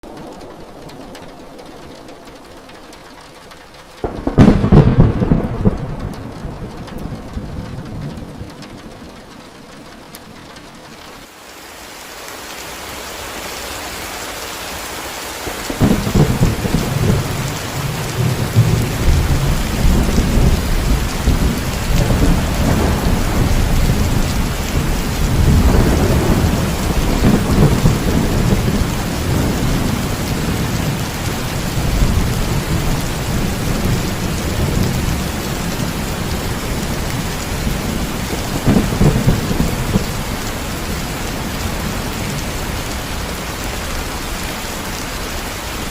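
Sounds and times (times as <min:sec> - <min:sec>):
steady rain: 0:00.0 - 0:45.9
rolling thunder: 0:04.0 - 0:10.6, 0:15.5 - 0:44.4.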